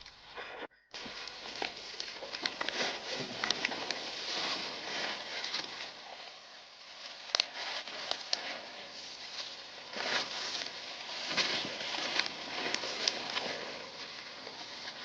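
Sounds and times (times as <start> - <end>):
dry leaves and twigs rustling: 0.0 - 15.0
twigs snapping: 1.0 - 4.4, 7.2 - 8.6.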